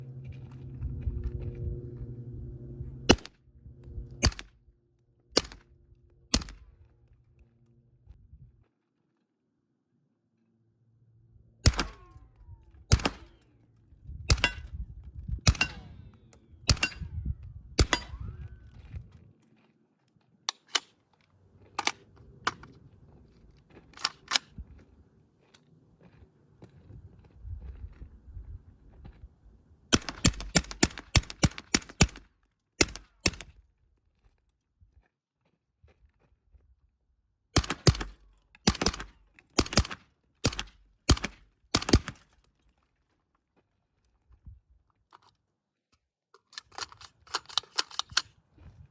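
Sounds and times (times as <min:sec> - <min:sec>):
low rumble: 0:00.0 - 0:08.6
gunshots with ringing tail: 0:11.6 - 0:12.2, 0:12.9 - 0:13.4, 0:15.5 - 0:16.0, 0:17.8 - 0:18.4, 0:37.6 - 0:42.2.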